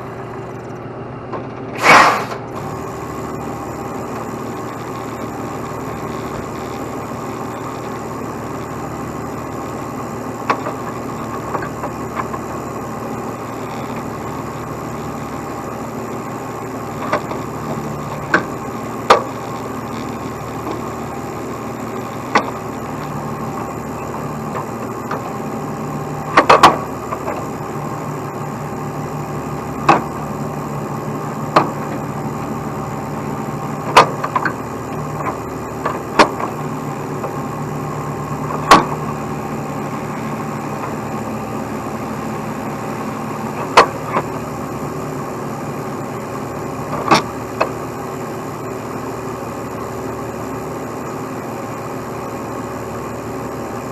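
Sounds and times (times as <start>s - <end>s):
truck diesel engine idling: 0.0s - 53.9s.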